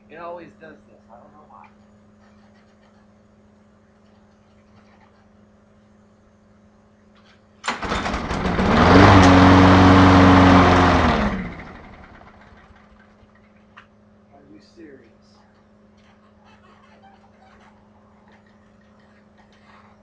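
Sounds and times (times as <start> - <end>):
lawn mower engine starting and dying: 7.6 - 13.5.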